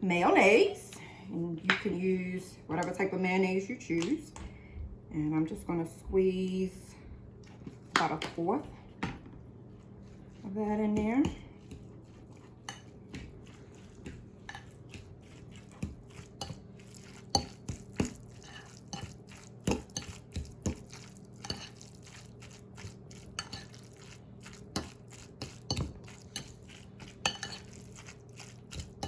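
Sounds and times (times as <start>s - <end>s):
utensil scraping a bowl: 9.7s - 29.0s.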